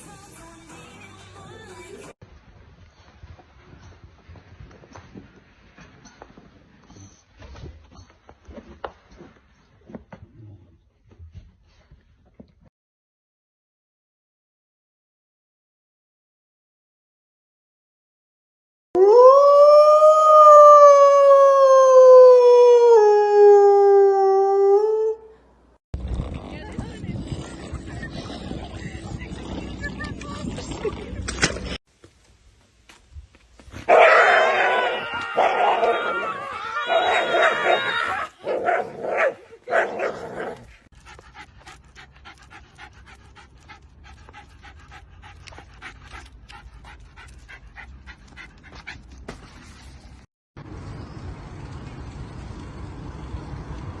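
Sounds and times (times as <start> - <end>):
dog howling: 19.0 - 25.3, 33.9 - 38.3
dog panting: 40.6 - 49.2.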